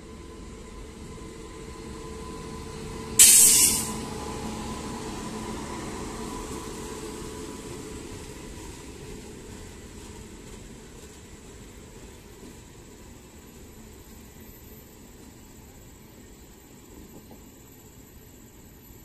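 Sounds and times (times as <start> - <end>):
train wheels rumbling on rail: 0.0 - 18.8
loud hiss: 3.2 - 4.1.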